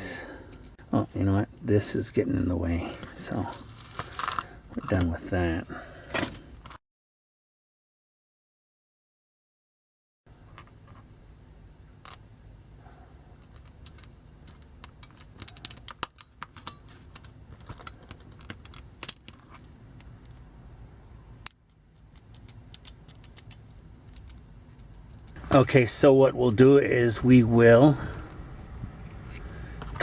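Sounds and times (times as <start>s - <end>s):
low steady hum: 10.3s - 30.0s
plastic toy parts clicking: 13.5s - 20.5s, 21.4s - 25.4s.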